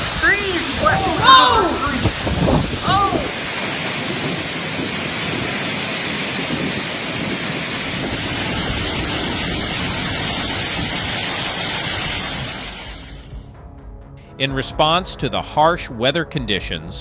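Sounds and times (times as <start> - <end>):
heavy rain pouring: 0.0 - 13.4.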